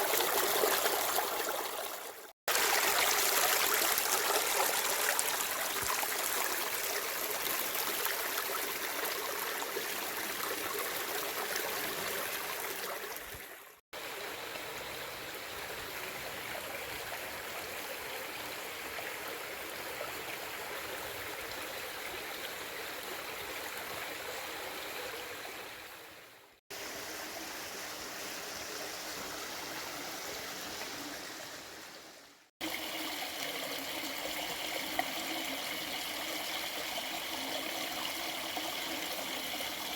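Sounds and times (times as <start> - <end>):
stream water rushing: 0.0 - 19.9.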